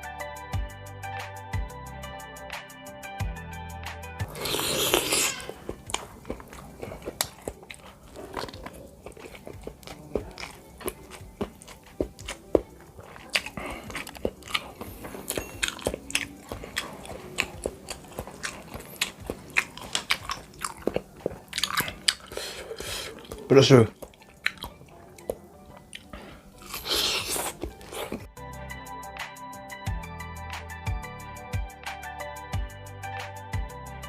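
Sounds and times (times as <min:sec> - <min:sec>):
close-miked chewing: 0:04.2 - 0:28.3.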